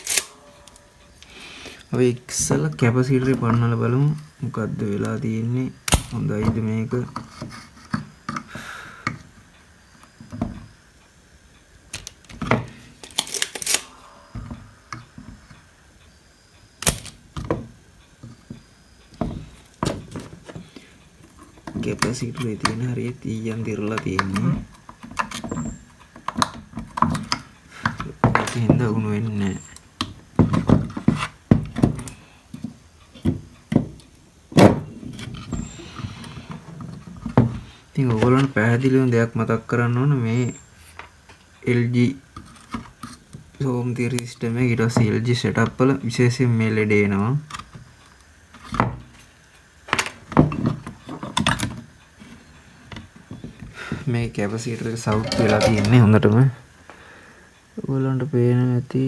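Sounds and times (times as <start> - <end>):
tools clicking and knocking: 0.0 - 1.3, 5.9 - 8.5, 11.9 - 15.6, 16.8 - 18.5, 55.0 - 56.1
hand tools knocking and clicking: 55.1 - 56.1.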